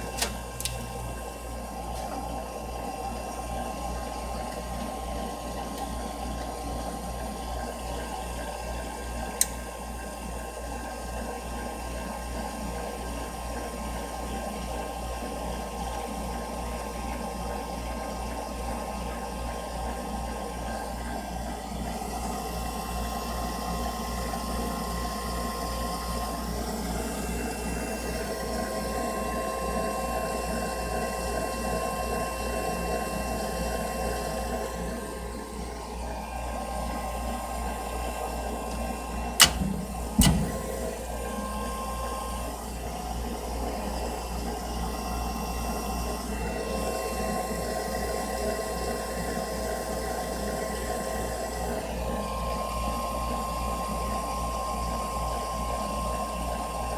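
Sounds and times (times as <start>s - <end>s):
furnace humming and whining: 0.0s - 56.9s
sharp click: 39.4s - 40.6s.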